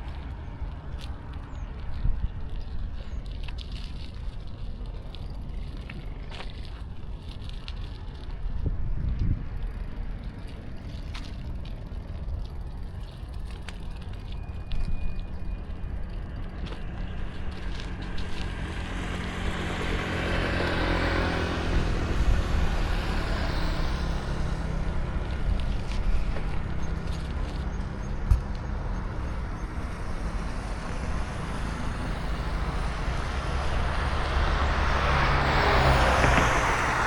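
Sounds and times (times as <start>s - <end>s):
road and wind rumble: 0.0s - 37.0s
vehicle passing: 15.5s - 37.0s.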